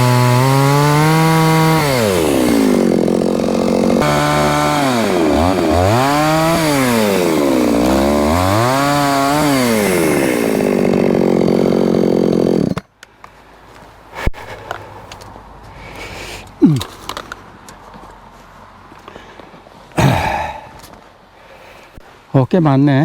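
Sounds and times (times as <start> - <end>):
chainsaw cutting wood: 0.0 - 12.9.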